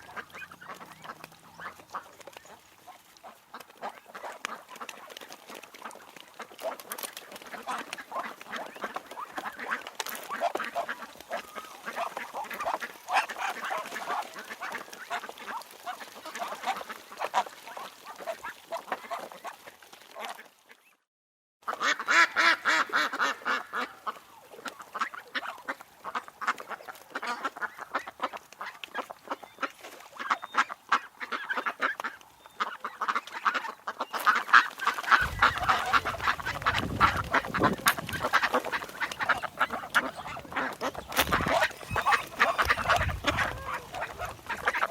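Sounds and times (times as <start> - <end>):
ducks quacking: 0.0 - 5.0, 5.8 - 19.4, 30.2 - 44.9.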